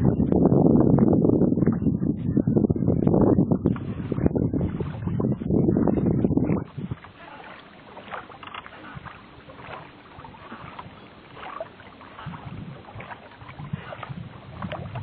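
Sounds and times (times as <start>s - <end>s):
water lapping around boat: 0.0s - 15.0s
oar strokes splashing: 3.1s - 15.0s.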